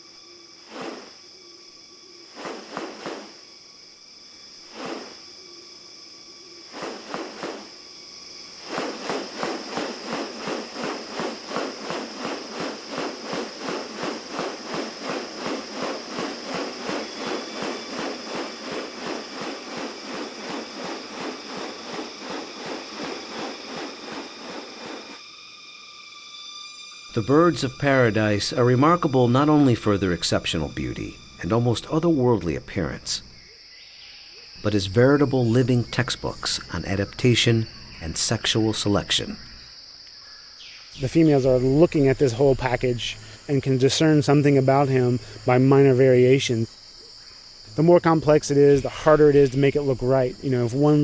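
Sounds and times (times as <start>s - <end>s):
insect drone: 0.0s - 51.0s.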